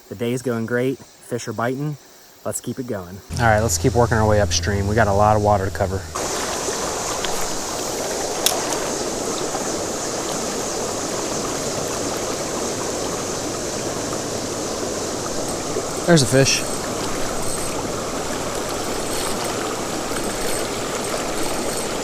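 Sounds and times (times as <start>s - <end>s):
creek water rushing over rocks: 6.0s - 22.0s.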